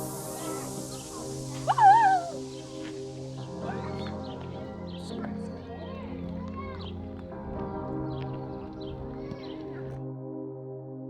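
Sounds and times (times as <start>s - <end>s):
peacock calling: 0.0s - 7.2s
background music: 0.0s - 11.0s.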